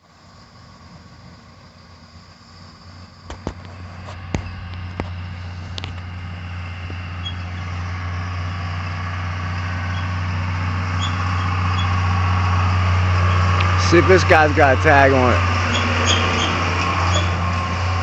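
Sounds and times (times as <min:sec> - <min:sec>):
tractor engine droning: 0:00.0 - 0:18.0.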